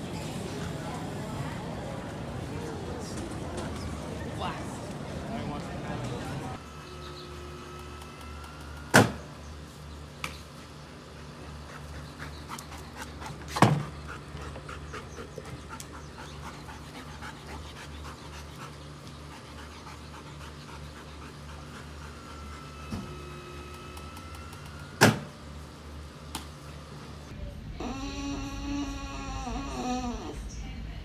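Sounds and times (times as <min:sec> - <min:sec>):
steady low hum: 0:05.8 - 0:31.0
dog panting: 0:11.1 - 0:22.7.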